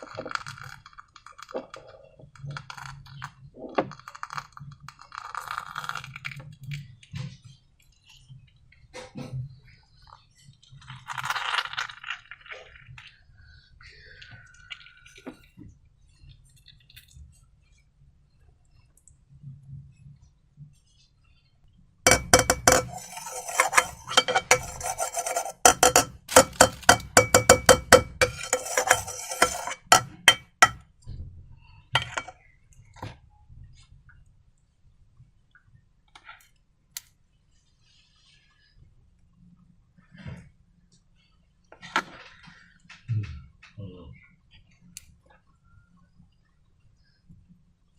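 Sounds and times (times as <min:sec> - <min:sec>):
faint handling sounds: 0:22.1 - 0:30.8
spoon clinking in a bowl: 0:22.1 - 0:30.8, 0:32.0 - 0:32.3.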